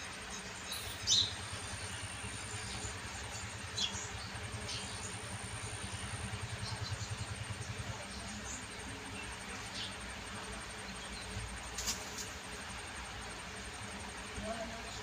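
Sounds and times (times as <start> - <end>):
engine idling: 0.0 - 15.0
bird chirps: 0.6 - 5.2.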